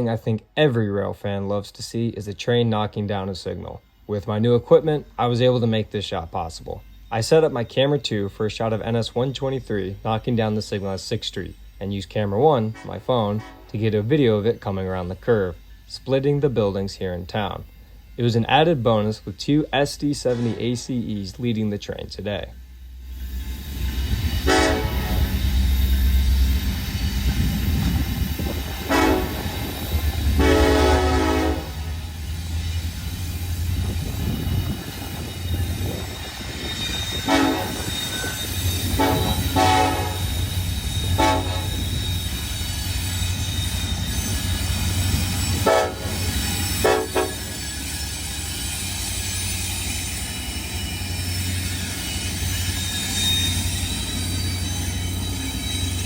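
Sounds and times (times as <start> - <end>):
rolling train: 0.0 - 56.0
train air horn blasts: 12.5 - 14.1, 20.1 - 21.2, 24.3 - 25.6, 28.6 - 32.2, 37.1 - 42.3, 45.4 - 47.6.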